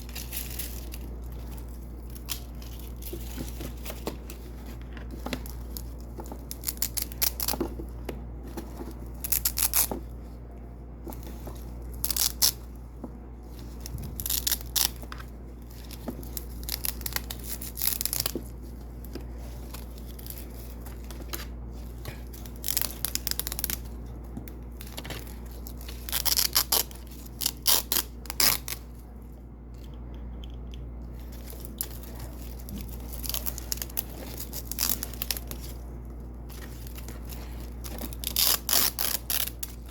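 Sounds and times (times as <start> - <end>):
faint low hum: 0.0 - 39.9
velcro peeling rips: 9.2 - 10.0, 12.0 - 12.6, 13.8 - 15.0, 15.8 - 18.5, 22.4 - 23.9, 24.8 - 28.8, 31.5 - 35.8, 36.7 - 39.9.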